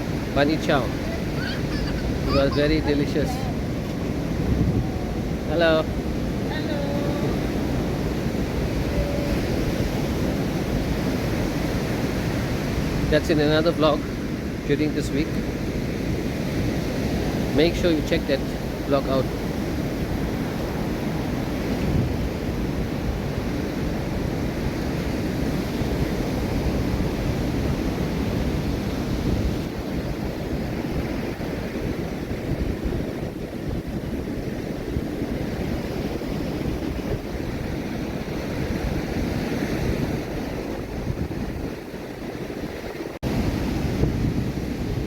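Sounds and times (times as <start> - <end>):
wind buffeting microphone: 0.0 - 13.2, 18.5 - 45.0
ocean waves breaking on beach: 0.0 - 45.0.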